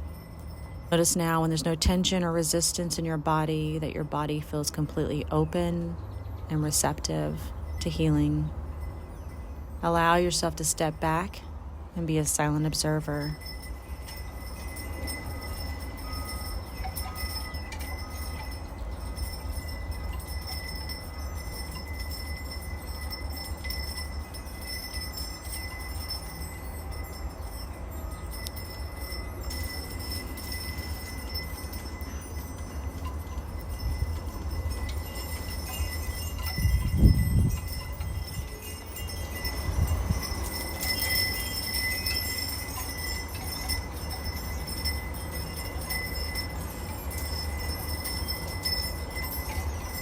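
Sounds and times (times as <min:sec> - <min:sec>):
wind chimes ringing: 0:00.0 - 0:50.0
wind rumble on microphone: 0:30.4 - 0:47.1
gust of wind: 0:36.4 - 0:38.6.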